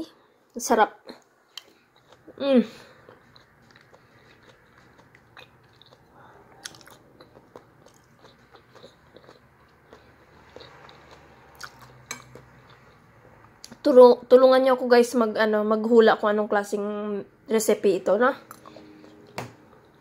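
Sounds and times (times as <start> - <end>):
quiet chewing: 1.1 - 13.8, 18.5 - 20.0.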